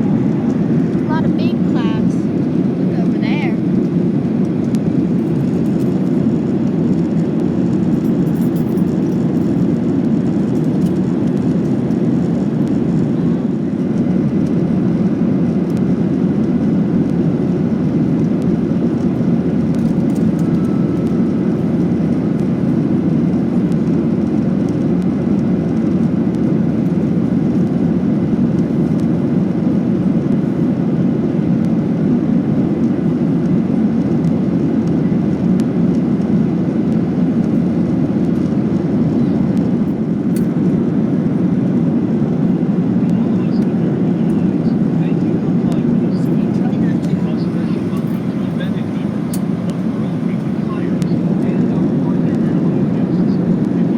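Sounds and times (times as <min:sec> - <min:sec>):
airplane cabin engine roar: 0:00.0 - 0:53.9.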